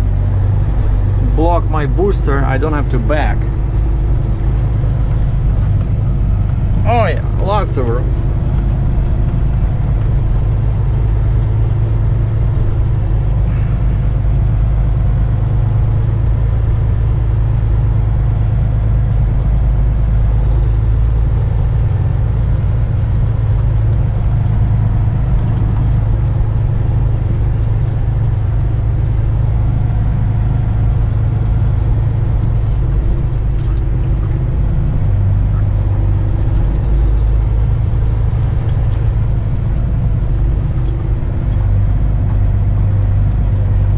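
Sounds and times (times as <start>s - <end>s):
diesel truck engine running: 0.0s - 43.9s
brief high squeaks: 32.6s - 34.3s.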